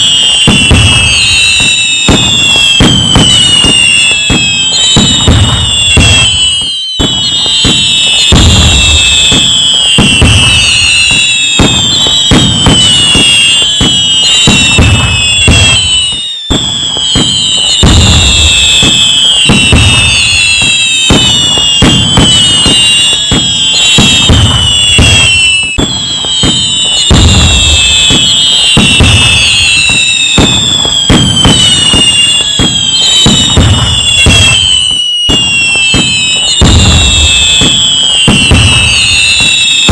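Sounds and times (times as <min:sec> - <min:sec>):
fireworks crackling and bangs: 0:00.0 - 0:39.9
whistling rockets: 0:00.0 - 0:39.9.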